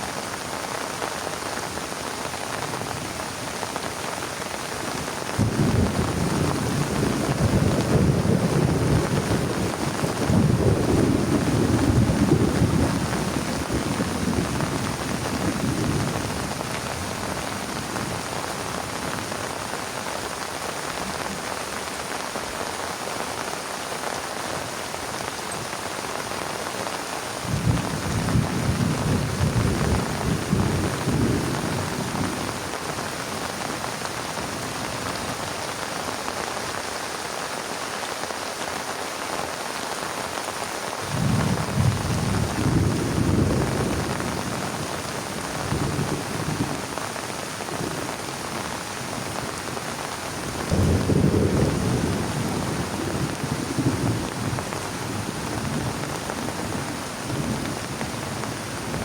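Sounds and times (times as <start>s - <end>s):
heavy rain falling: 0.0s - 59.0s
thunder rumbling: 5.4s - 18.3s, 27.4s - 32.8s, 41.1s - 46.9s, 50.6s - 57.8s.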